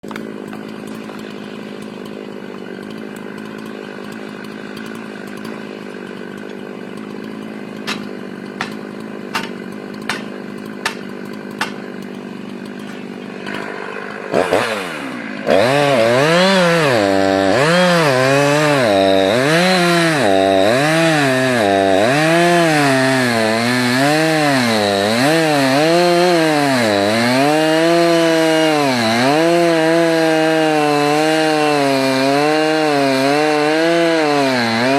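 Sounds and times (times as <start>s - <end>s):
chainsaw idling and cutting wood: 0.0s - 34.9s
sharp knocks: 7.8s - 11.8s.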